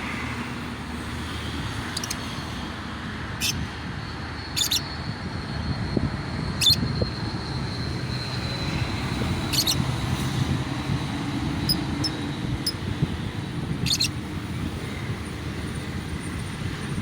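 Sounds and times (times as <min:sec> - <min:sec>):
traffic rumble: 0:00.0 - 0:17.0
lovebirds shrill chirps: 0:01.9 - 0:02.2, 0:03.4 - 0:03.6, 0:04.6 - 0:04.8, 0:06.6 - 0:06.8, 0:09.4 - 0:10.0, 0:13.8 - 0:14.2.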